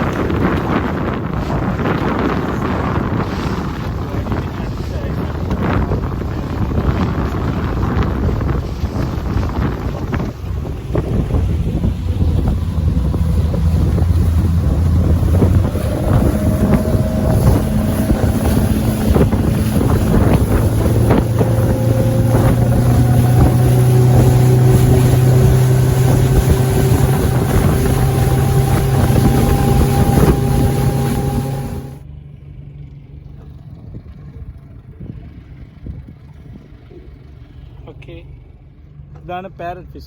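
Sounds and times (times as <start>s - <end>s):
wind buffeting microphone: 0.0s - 32.0s
boat engine humming: 0.0s - 39.8s.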